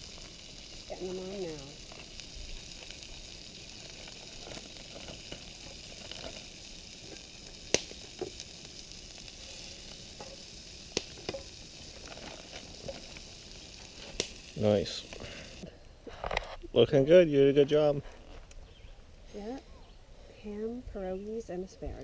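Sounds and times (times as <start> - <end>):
food sizzling in a frying pan: 0.0 - 15.7.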